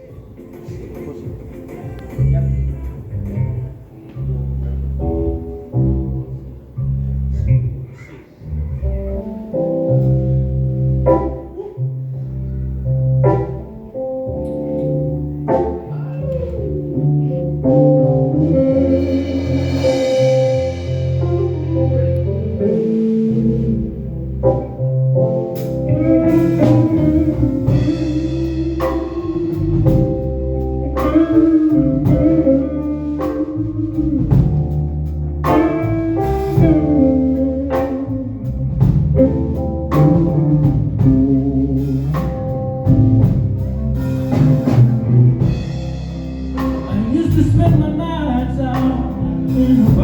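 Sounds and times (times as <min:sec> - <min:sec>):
person singing: 0:00.0 - 0:04.5, 0:46.8 - 0:50.0
guitar: 0:00.0 - 0:50.0
bass line: 0:01.2 - 0:50.0
drum kit hits: 0:17.6 - 0:50.0.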